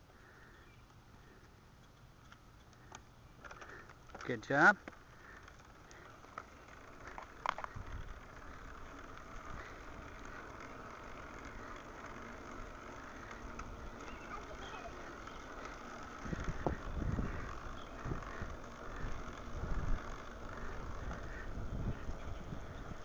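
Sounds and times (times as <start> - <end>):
bicycle ride hiss: 0.0 - 23.0
wind rumbling on microphone: 7.5 - 10.1, 16.2 - 23.0.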